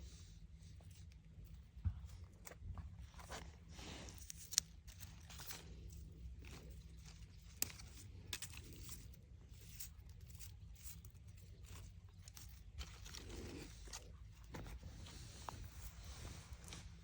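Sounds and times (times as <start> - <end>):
dry plant stems crunching and snapping: 2.4 - 14.8.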